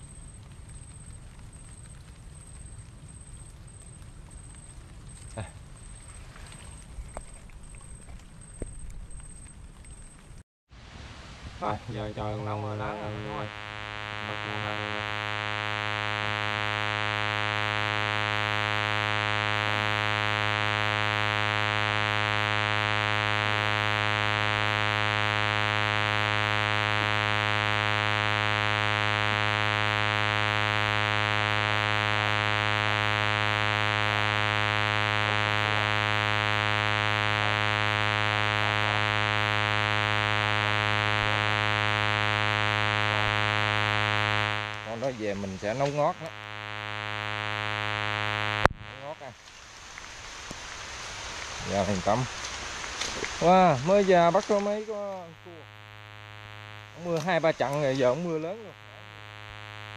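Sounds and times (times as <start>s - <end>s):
faint voice: 5.3s - 5.6s
loud electronic buzz tone: 11.6s - 49.4s, 50.8s - 59.9s.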